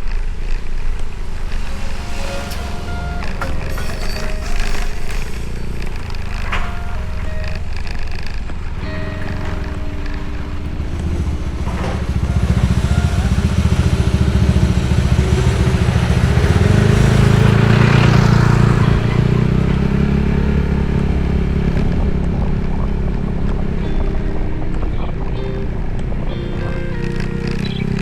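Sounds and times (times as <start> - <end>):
motorcycle engine running: 6.4 - 24.0.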